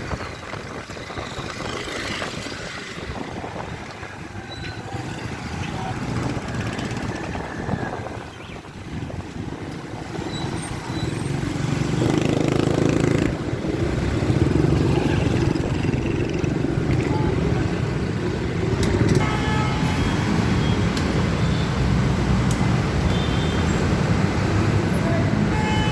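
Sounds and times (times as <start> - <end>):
road noise: 0.0 - 25.9
motorcycle engine running: 11.7 - 17.2.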